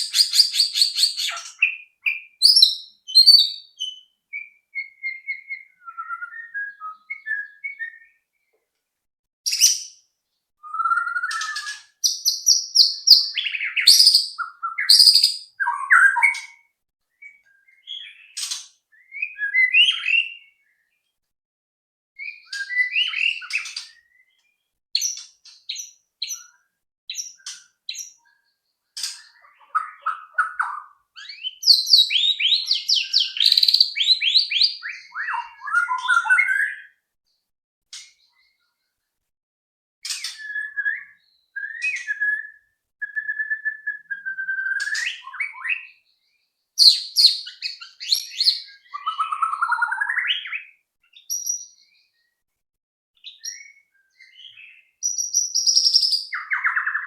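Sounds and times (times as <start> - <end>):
bird singing whistled phrases: 0.0 - 8.3, 10.6 - 18.4, 19.0 - 20.9, 22.2 - 24.4, 29.2 - 37.0, 40.1 - 46.0, 46.8 - 52.0, 53.2 - 57.0.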